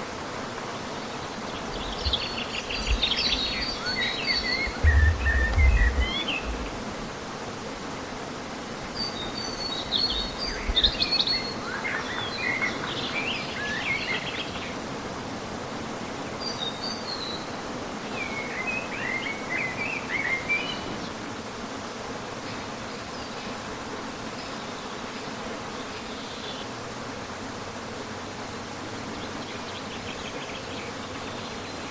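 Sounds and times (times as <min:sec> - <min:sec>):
steady background hiss: 0:00.0 - 0:31.9
small birds singing: 0:00.8 - 0:06.9, 0:09.0 - 0:14.8
brief low rumbles: 0:04.5 - 0:07.0.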